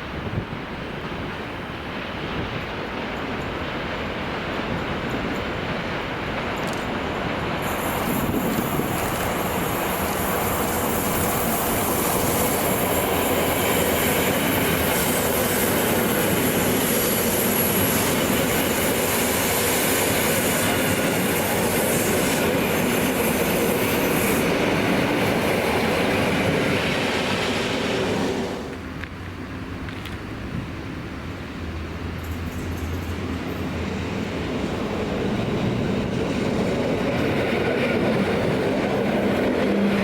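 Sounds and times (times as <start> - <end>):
train rumbling by: 0.0 - 40.0
high wheel squeal: 7.6 - 25.0.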